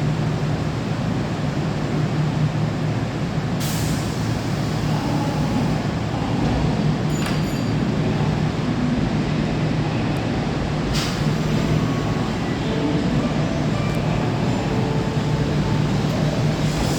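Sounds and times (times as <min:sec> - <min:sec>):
electric train humming: 0:00.0 - 0:16.9
air brake hiss: 0:03.6 - 0:05.8, 0:10.9 - 0:11.8, 0:16.6 - 0:16.9.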